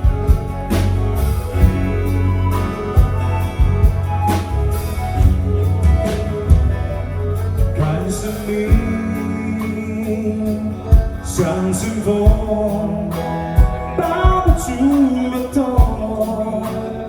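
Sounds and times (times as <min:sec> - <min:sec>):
drum kit hits: 0:00.0 - 0:08.0
bass line: 0:00.0 - 0:17.0
guitar: 0:00.0 - 0:17.0.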